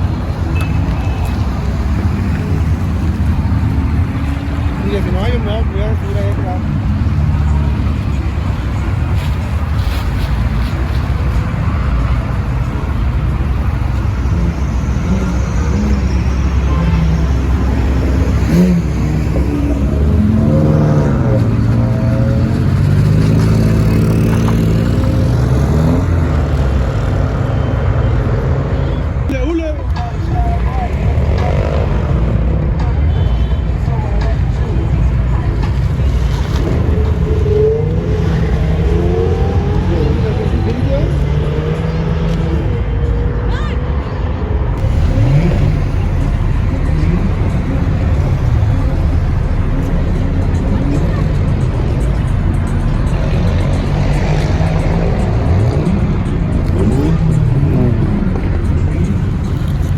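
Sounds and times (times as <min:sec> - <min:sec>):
loud car engine drone: 0:00.0 - 0:59.9
music playing: 0:00.0 - 0:59.9.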